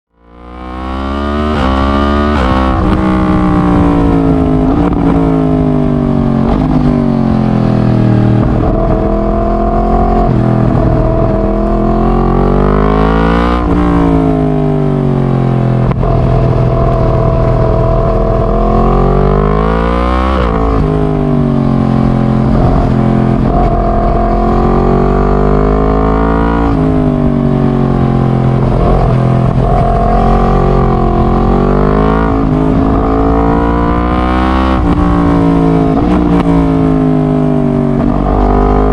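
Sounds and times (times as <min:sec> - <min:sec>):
motorcycle engine revving: 0:00.1 - 0:38.9.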